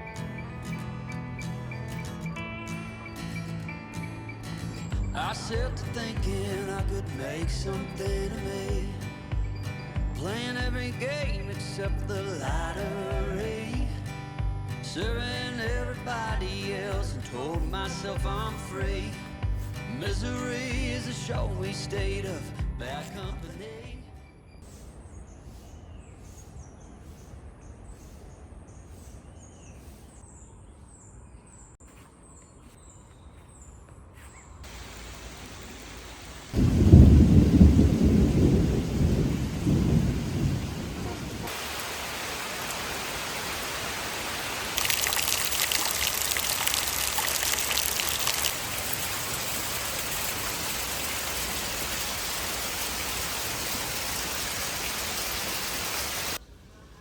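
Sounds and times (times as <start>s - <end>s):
faint bird chirps: 0.0s - 5.4s, 24.0s - 34.6s
steady rain: 34.6s - 56.4s
low rumble of thunder: 36.6s - 41.5s.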